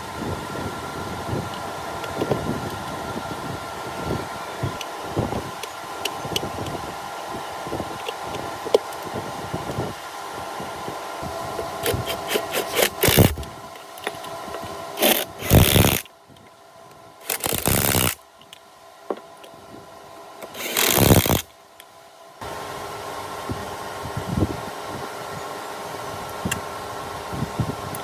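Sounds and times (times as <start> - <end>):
steady mechanical hum: 0.0 - 28.0
power tool bursts: 11.6 - 14.2, 15.0 - 16.1, 17.2 - 18.2, 20.4 - 21.5.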